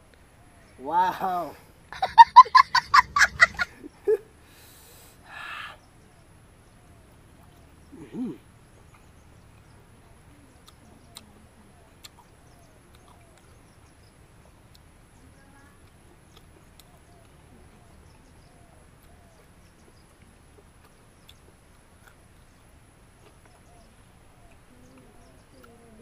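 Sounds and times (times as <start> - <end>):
faint bird chirps: 3.0 - 26.0
person humming mm: 7.9 - 8.4, 24.6 - 26.0.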